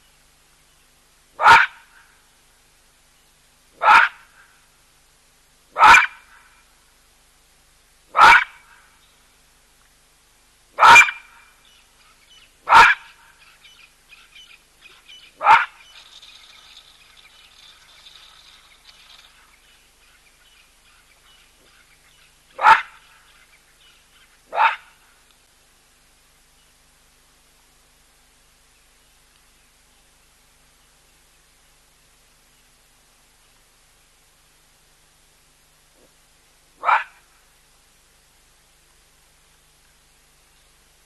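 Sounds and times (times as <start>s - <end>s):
baboon barking: 1.4s - 2.0s, 3.8s - 4.4s, 5.7s - 6.4s, 8.1s - 8.7s, 10.8s - 11.4s, 12.6s - 13.3s, 15.1s - 16.8s, 22.5s - 23.3s, 24.5s - 25.0s, 36.8s - 37.3s
faint bird chirps: 11.1s - 24.5s.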